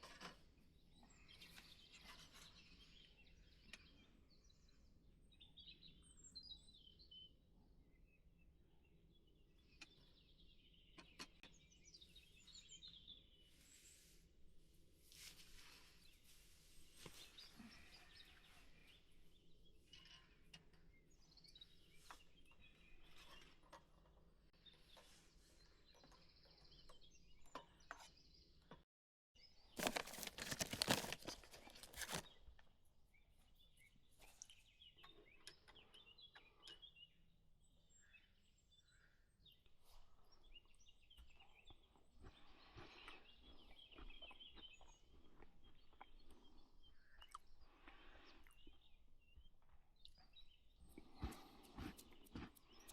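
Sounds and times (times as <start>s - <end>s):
loud rustling: 29.8s - 32.2s.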